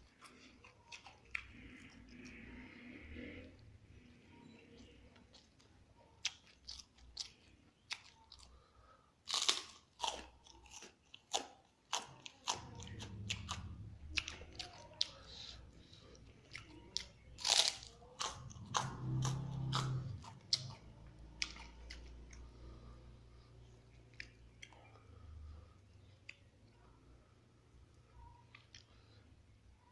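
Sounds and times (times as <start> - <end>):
crispy food crunching: 4.5 - 22.9.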